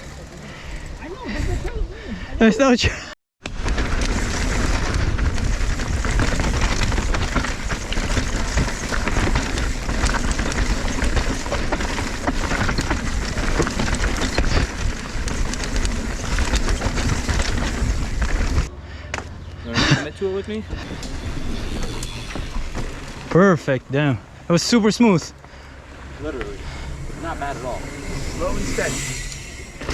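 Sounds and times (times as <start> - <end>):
bike clattering and rattling: 0.0 - 1.8, 3.4 - 23.8, 25.3 - 29.9
bike tyres on dirt trail: 0.0 - 1.8, 3.4 - 29.9
wind rushing: 26.1 - 29.9.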